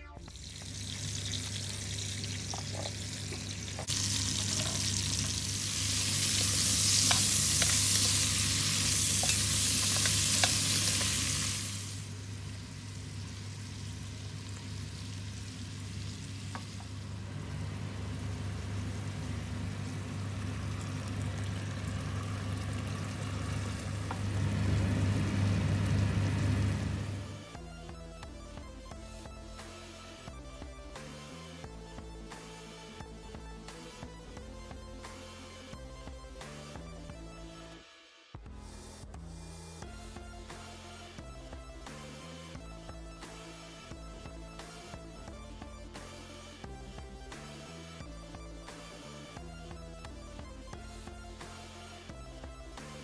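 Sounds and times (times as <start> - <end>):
vegetables sizzling in oil: 0.3 - 27.2.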